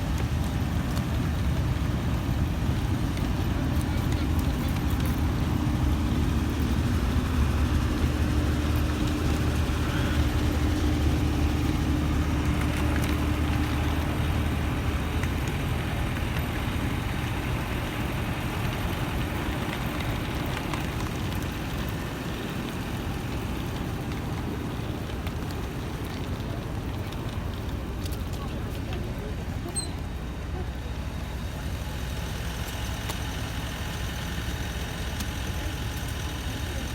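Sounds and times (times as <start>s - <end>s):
engine hum with low drone: 0.0s - 36.9s.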